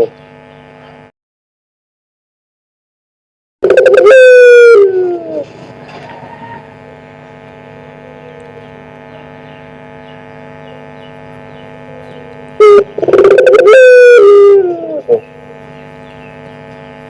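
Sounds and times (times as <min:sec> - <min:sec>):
steady hum of held tones: 0:00.0 - 0:01.1, 0:03.6 - 0:17.0
dove cooing: 0:03.6 - 0:16.7.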